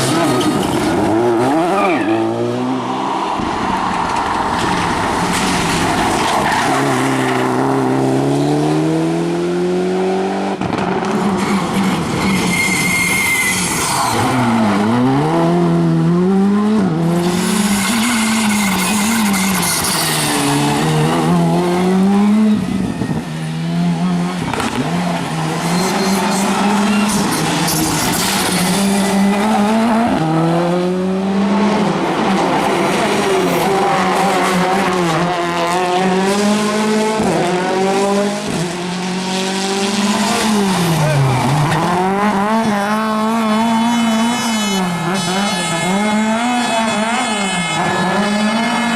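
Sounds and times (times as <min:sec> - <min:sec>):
tyre squeal: 0:01.5 - 0:02.4, 0:11.4 - 0:14.7, 0:17.2 - 0:20.8, 0:25.4 - 0:29.2
rally car engine revving: 0:03.7 - 0:48.9.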